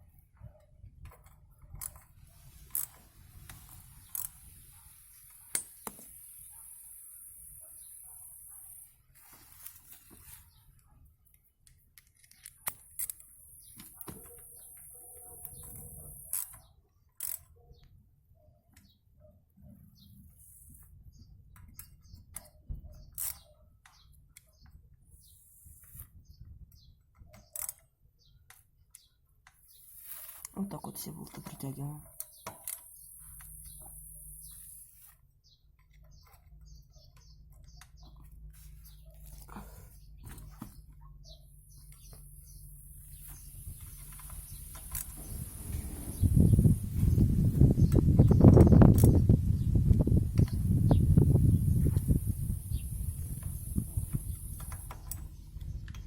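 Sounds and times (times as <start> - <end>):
sharp metal clicks: 2.7 - 4.4, 11.6 - 17.5
handling noise: 42.0 - 49.2.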